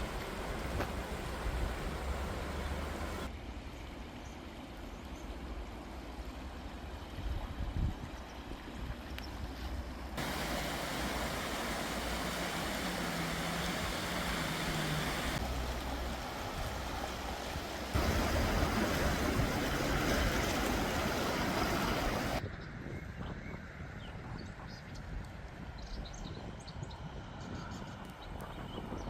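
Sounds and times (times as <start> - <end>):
rushing river water: 0.0 - 3.3, 10.2 - 22.4.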